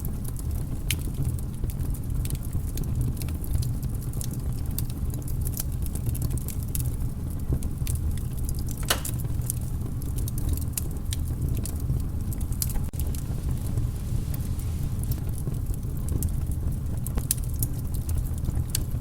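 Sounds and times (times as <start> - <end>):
wood fire crackling: 0.0 - 19.0
low rumble: 12.0 - 17.5.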